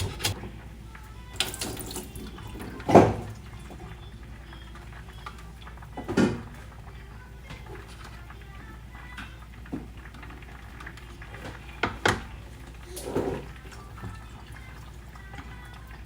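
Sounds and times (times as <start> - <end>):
liquid pouring: 0.0 - 3.9.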